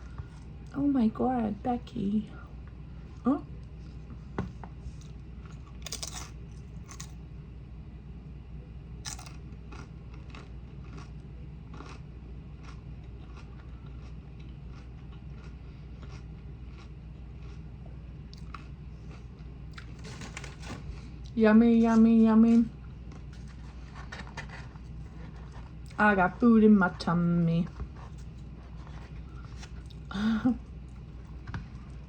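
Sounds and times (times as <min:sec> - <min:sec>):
chewing crunchy food: 0:04.8 - 0:07.2, 0:09.0 - 0:21.9, 0:22.9 - 0:26.0, 0:27.7 - 0:32.0.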